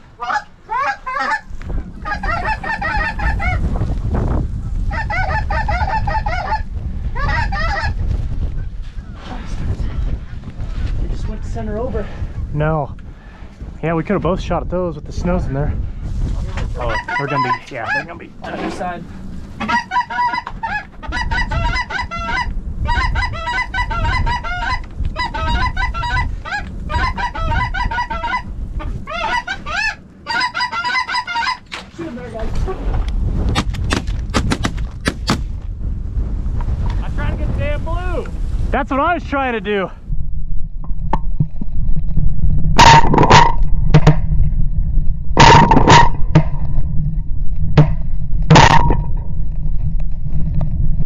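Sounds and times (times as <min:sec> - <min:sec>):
wind rumble on microphone: 0:00.0 - 0:51.0
geese honking: 0:00.2 - 0:03.6, 0:04.9 - 0:08.0, 0:16.8 - 0:18.7, 0:19.5 - 0:31.7.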